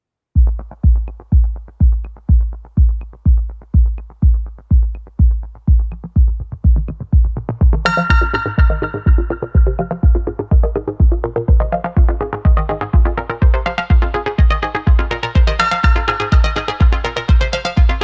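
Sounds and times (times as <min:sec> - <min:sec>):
drum machine kick: 0:00.4 - 0:18.0
bright synthesizer chord: 0:07.9 - 0:18.0.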